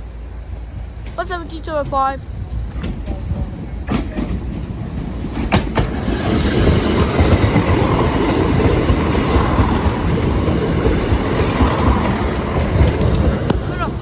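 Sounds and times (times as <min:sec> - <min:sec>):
rumble of wheels on rail: 0:00.0 - 0:14.0
train wheel clicks: 0:02.6 - 0:14.0.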